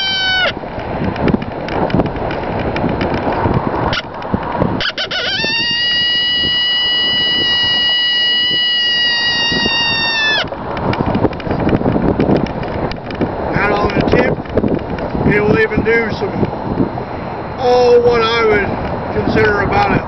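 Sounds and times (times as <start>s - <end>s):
horn call high howl: 0.0s - 0.6s, 4.8s - 10.6s
rushing noise: 0.0s - 20.0s.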